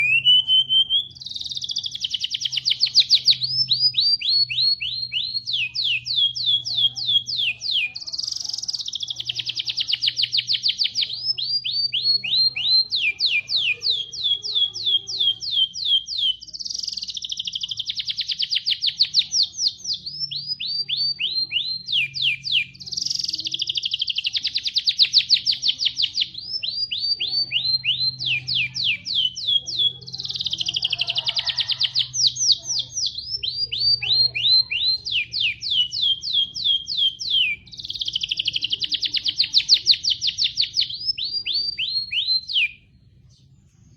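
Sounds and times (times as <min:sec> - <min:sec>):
songbird trilling: 0:00.0 - 0:43.4.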